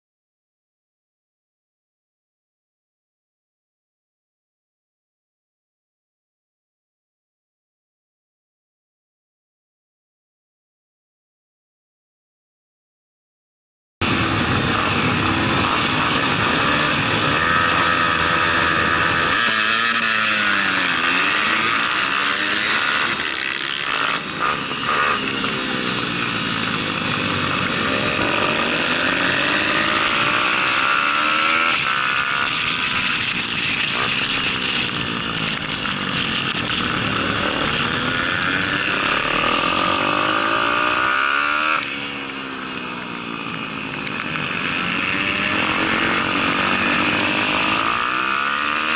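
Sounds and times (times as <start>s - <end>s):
pit bike engine revving: 14.0s - 48.9s.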